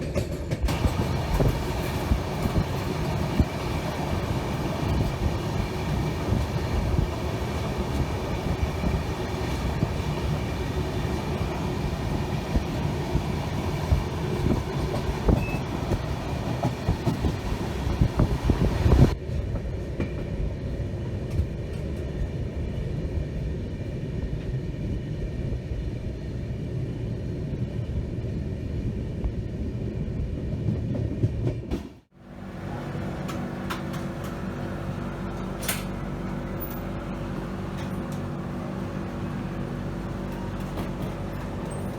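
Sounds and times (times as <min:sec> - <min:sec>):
sharp knocks of train wheels: 0:00.0 - 0:20.5
train rumbling on rails: 0:00.0 - 0:41.9.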